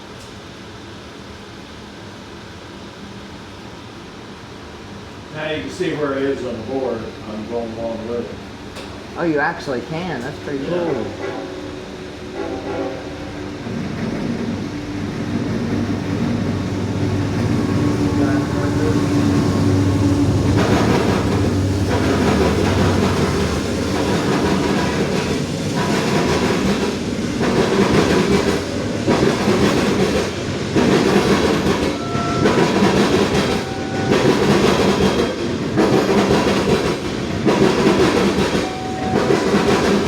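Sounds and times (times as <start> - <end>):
train engine hum: 0.0 - 40.0
train wheel clatter: 12.4 - 40.0.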